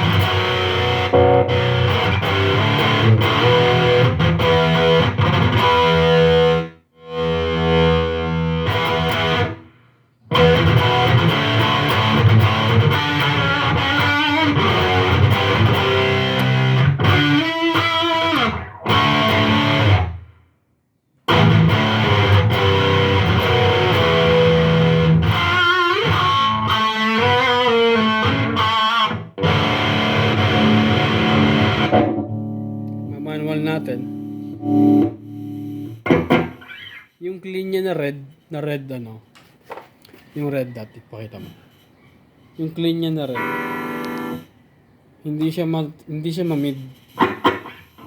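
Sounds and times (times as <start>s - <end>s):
distorted electric guitar: 0.0s - 20.3s, 21.3s - 37.1s, 43.2s - 44.6s.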